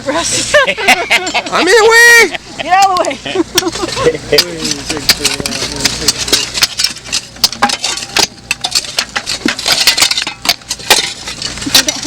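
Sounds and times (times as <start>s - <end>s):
digging tools striking rocks: 4.4s - 12.0s.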